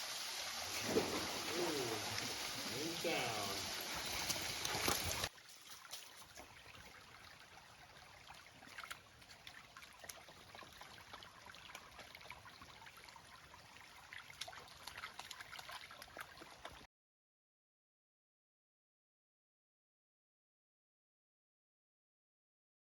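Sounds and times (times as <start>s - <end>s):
stream trickling: 0.0s - 16.9s
water drips: 0.7s - 16.9s.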